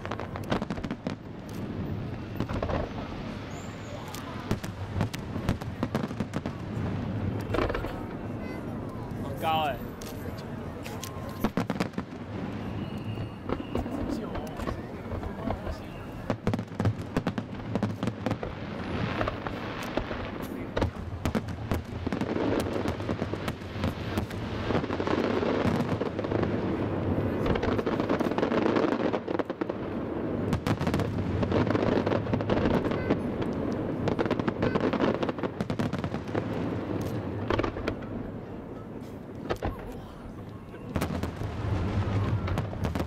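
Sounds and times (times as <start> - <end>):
fireworks bangs: 0.0 - 43.0
fireworks crackle: 0.0 - 43.0.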